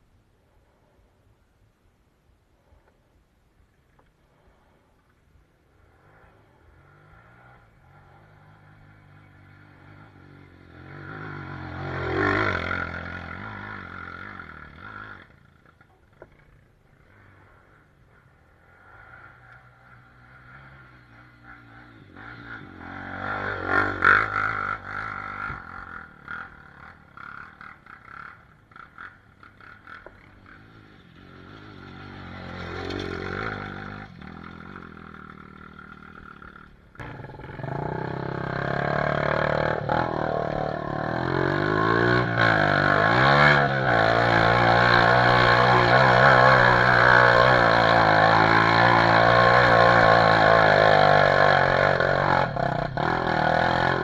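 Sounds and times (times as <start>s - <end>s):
distant dirt bike revving: 5.5s - 54.0s
close dirt bike engine running: 19.7s - 54.0s.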